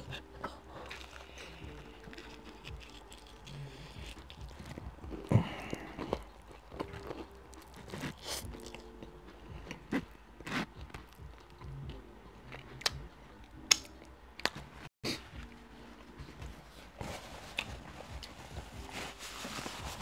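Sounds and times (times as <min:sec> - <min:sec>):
wet chewing with clicks: 0:00.4 - 0:14.7.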